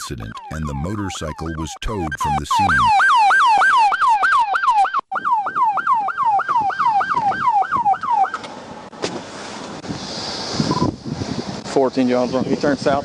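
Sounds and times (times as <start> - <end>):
police siren sweeping: 0.0 - 8.4.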